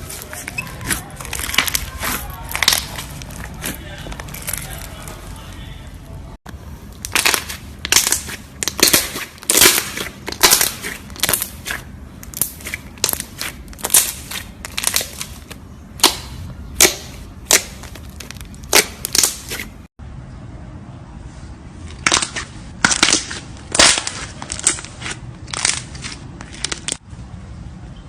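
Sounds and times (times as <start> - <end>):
brittle crunching: 0.0 - 5.3, 7.0 - 19.7.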